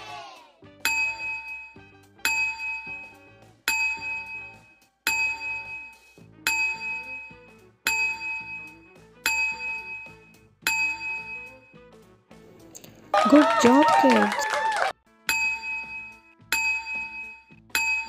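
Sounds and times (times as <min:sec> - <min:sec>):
soft background tune: 0:00.6 - 0:18.0
bright bell-like chime: 0:00.8 - 0:11.7.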